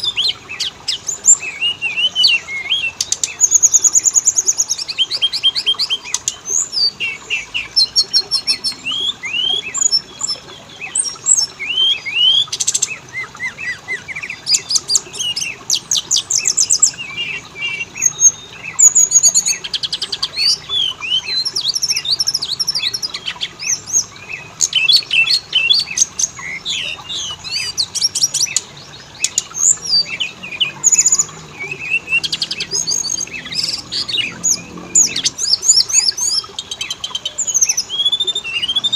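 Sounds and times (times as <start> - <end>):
songbird whistling and trilling: 0.0 - 38.9.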